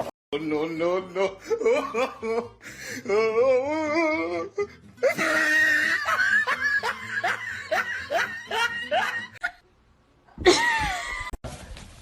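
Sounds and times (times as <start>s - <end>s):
high wavering vocal cry: 3.0s - 9.4s
shrill laughing and shrieking: 3.8s - 9.5s.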